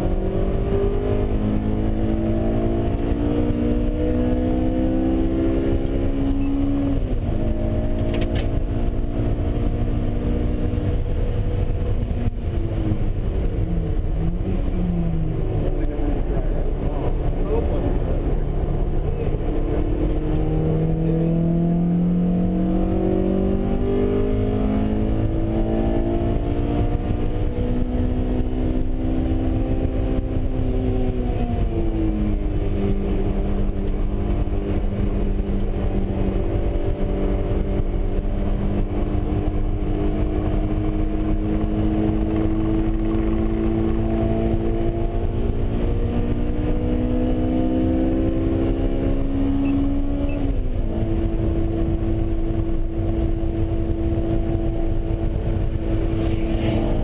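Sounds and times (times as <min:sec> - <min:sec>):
car engine under load: 0:00.0 - 0:57.0
low rumble: 0:07.0 - 0:23.9, 0:50.6 - 0:57.0.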